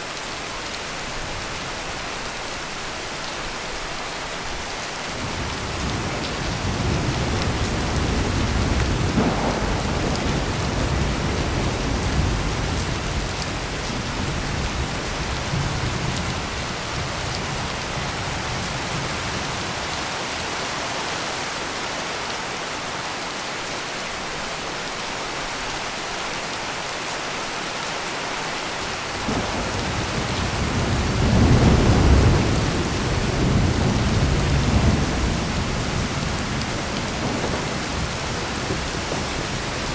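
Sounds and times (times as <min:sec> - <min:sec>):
heavy rain falling: 0:00.0 - 0:39.9
thunder rumbling: 0:05.2 - 0:19.8, 0:29.2 - 0:39.9.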